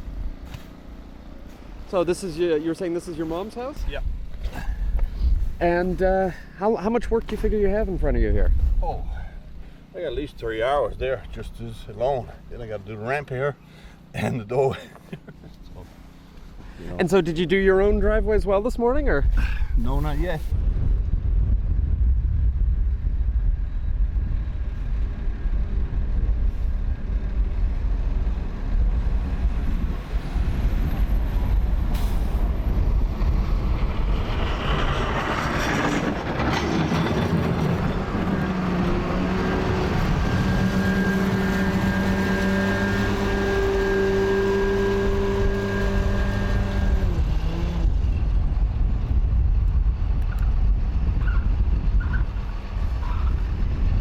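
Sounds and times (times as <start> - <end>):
heavy vehicle engine rumble: 20.5 - 54.0.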